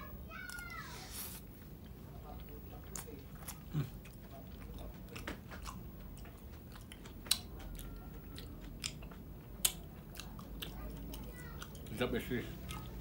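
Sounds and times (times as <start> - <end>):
person chewing: 0.5 - 13.0.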